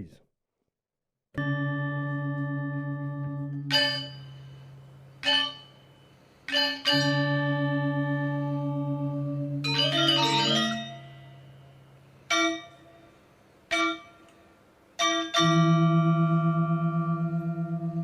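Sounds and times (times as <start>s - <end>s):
gamelan gongs and metallophones: 3.7s - 5.9s, 6.5s - 8.8s, 9.6s - 11.4s.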